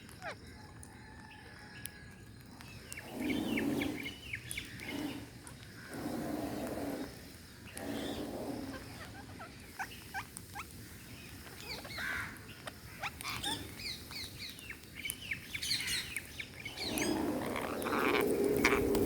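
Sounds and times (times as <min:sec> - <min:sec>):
parrots chirping: 0:07.9 - 0:14.8, 0:15.6 - 0:19.0.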